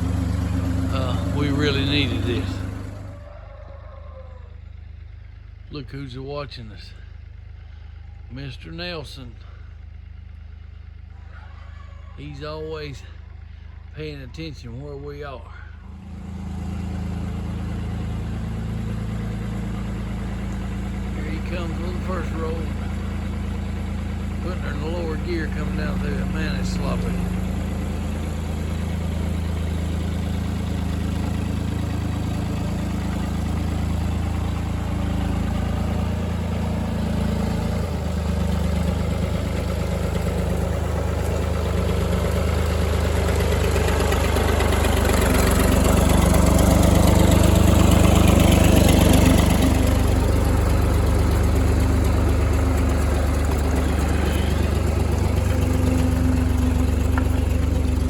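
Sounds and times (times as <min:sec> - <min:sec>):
tractor engine running: 0:00.0 - 0:11.5, 0:12.1 - 0:58.0.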